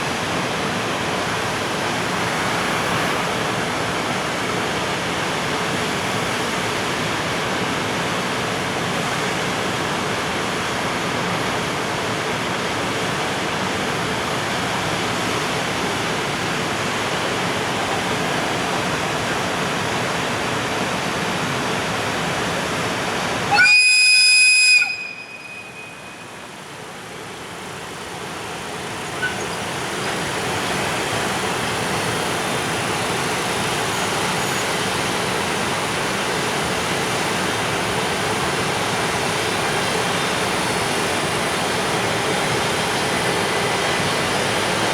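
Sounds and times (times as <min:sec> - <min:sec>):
freight train rushing past: 0:00.0 - 0:07.3, 0:11.8 - 0:44.9
high-pitched train horn blast: 0:23.5 - 0:26.4.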